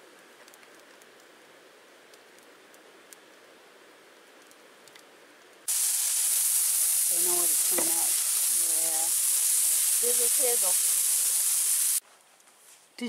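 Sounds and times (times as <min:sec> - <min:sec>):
patties sizzling on griddle: 0:05.6 - 0:12.0
person's voice: 0:07.1 - 0:09.1, 0:10.0 - 0:10.8.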